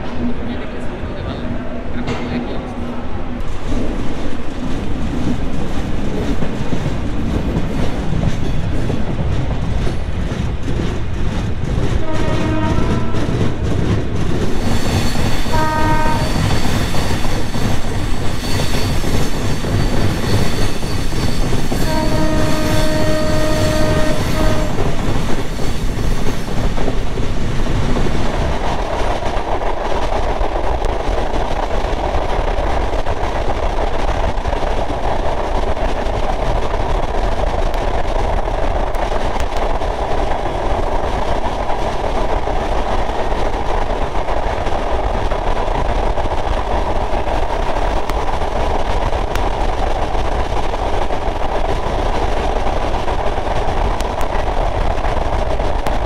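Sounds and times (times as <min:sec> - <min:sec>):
train rumbling on rails: 0:00.0 - 0:56.0
train horn blasts: 0:12.0 - 0:13.3, 0:15.5 - 0:16.5, 0:21.8 - 0:24.8.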